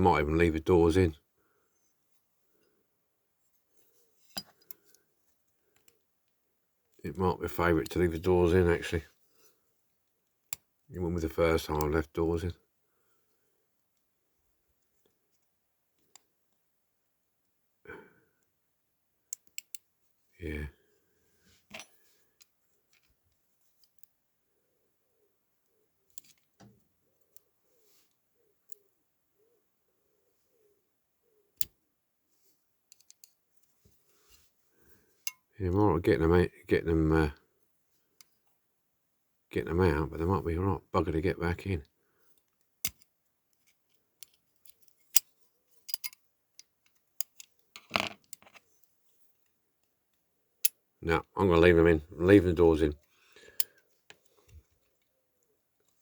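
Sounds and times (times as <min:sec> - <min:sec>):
small metal parts clicking: 0:32.9 - 0:33.4, 0:42.4 - 0:48.6
toy car metal parts tapping: 0:45.9 - 0:46.2.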